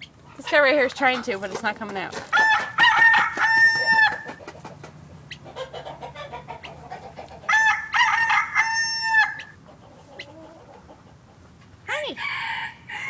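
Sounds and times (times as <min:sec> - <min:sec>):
chickens clucking quietly: 0:00.0 - 0:13.0
rooster crow ringtone: 0:02.4 - 0:04.2, 0:07.6 - 0:09.5.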